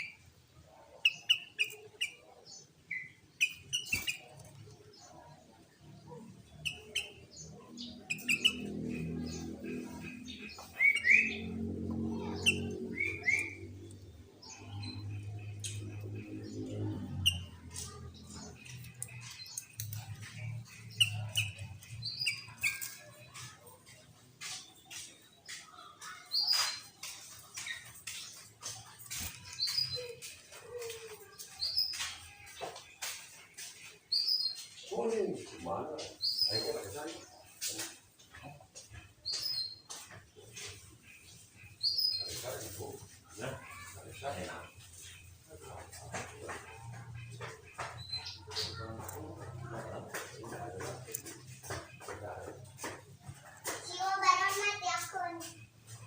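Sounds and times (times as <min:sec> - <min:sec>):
high bird chirps: 0:00.0 - 0:05.3, 0:06.1 - 0:34.9, 0:38.8 - 0:49.6
bulbul chirping: 0:01.0 - 0:02.2, 0:02.9 - 0:04.4, 0:06.5 - 0:13.7.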